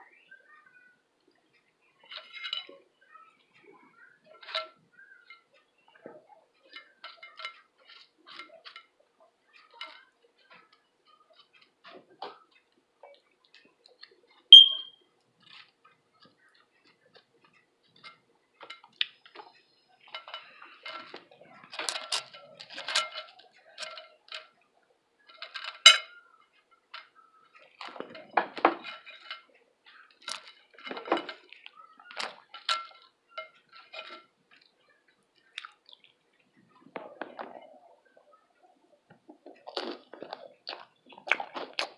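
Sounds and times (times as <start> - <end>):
cutlery clinking on a plate: 2.1 - 2.8, 4.4 - 9.0, 9.6 - 12.6, 17.9 - 24.5, 25.3 - 34.7.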